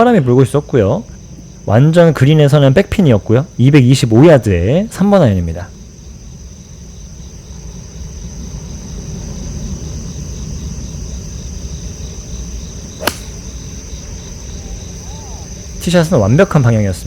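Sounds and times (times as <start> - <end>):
insects chirping: 0.0 - 17.0
golf club striking ball: 13.0 - 13.6.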